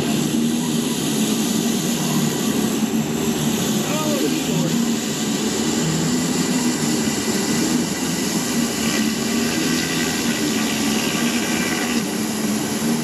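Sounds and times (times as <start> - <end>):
pressure washer engine humming: 0.0 - 13.0
high-pressure water spray hiss: 7.8 - 13.0.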